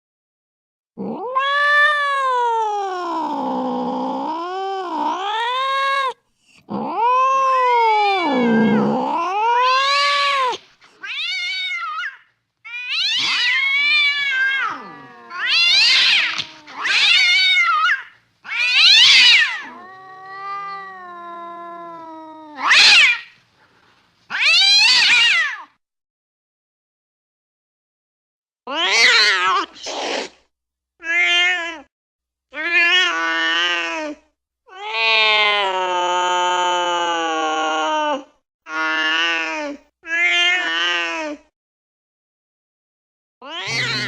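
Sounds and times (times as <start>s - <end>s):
cat yowling and meowing: 1.0s - 23.4s, 24.3s - 25.7s, 28.7s - 29.7s, 31.0s - 31.9s, 32.6s - 41.5s, 43.4s - 44.0s.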